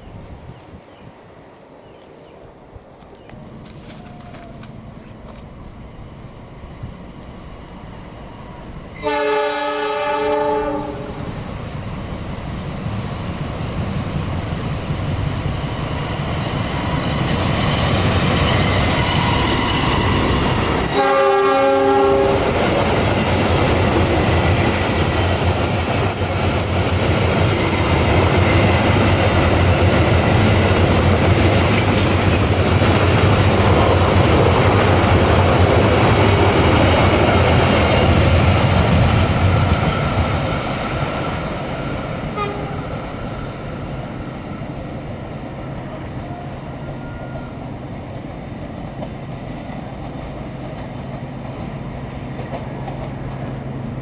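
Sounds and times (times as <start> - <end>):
train horn chord: 9.0 - 11.3, 20.9 - 22.5, 42.3 - 43.2
train wheels clattering: 22.2 - 43.7.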